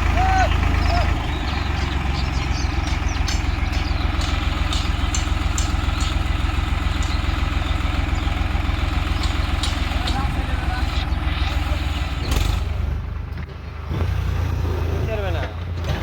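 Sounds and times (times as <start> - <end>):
tractor diesel engine running: 0.0 - 16.0
sharp clicks: 1.5 - 14.1.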